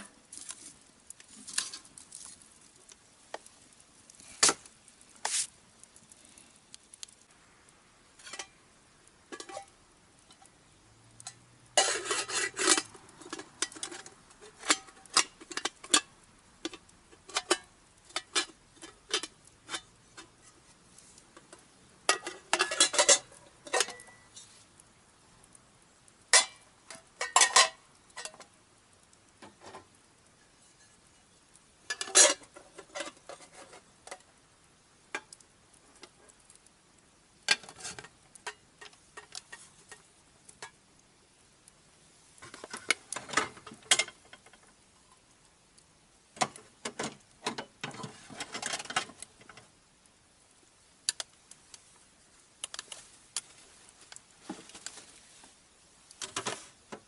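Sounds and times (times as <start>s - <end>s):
camping gear clinking and clattering: 21.3s - 24.5s, 26.3s - 28.5s, 31.9s - 34.2s, 42.4s - 44.6s, 56.2s - 57.0s.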